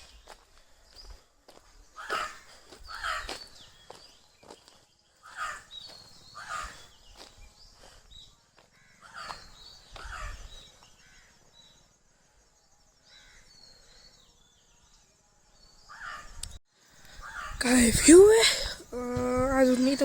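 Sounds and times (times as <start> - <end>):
birds calling: 0.0 - 12.0, 13.0 - 15.0, 15.6 - 20.0.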